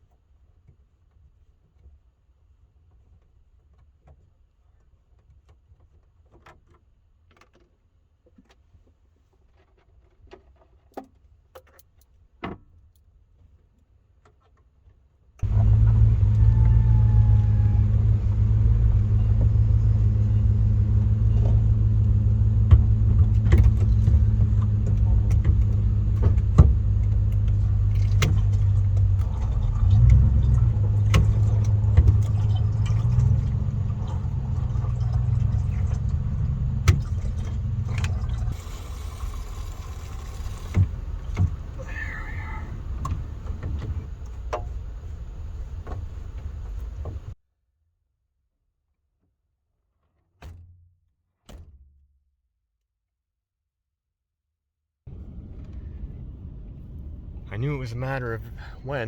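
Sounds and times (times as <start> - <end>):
faint clicks and rattles: 15.4 - 47.4
van engine running: 15.4 - 47.4, 55.1 - 59.0.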